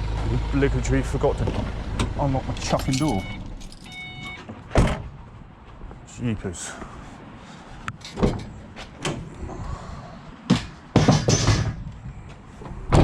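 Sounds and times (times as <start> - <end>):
van door rattling open: 1.4 - 5.2, 12.6 - 13.0
van door clicks and clunks: 1.4 - 5.3, 7.9 - 9.3, 12.6 - 13.0.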